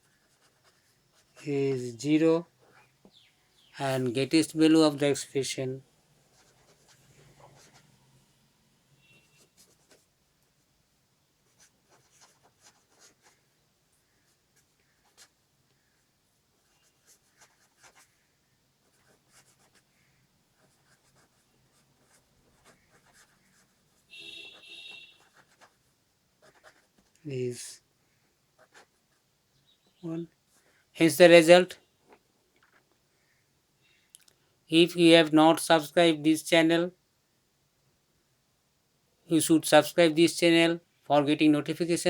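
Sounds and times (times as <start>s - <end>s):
pen scratching: 0.0s - 1.4s, 6.3s - 7.9s, 9.1s - 10.1s, 11.5s - 13.4s, 14.2s - 15.4s, 16.6s - 18.2s, 18.8s - 27.2s, 28.6s - 29.0s.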